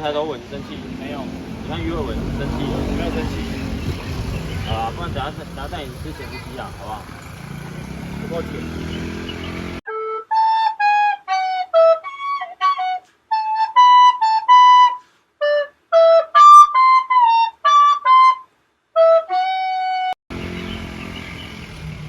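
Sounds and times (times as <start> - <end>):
flute melody: 9.9 - 20.2.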